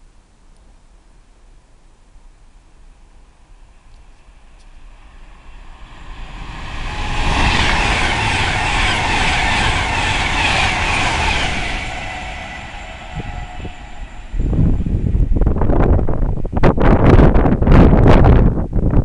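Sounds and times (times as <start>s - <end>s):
train rushing past: 3.5s - 18.0s.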